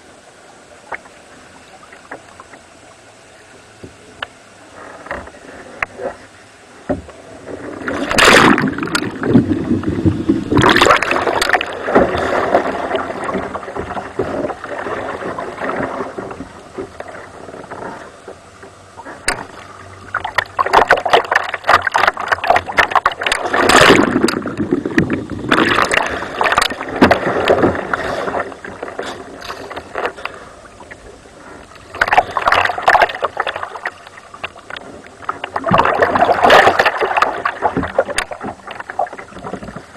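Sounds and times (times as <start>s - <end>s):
water splashing around kayak: 0.0s - 39.9s
water lapping: 7.1s - 39.9s.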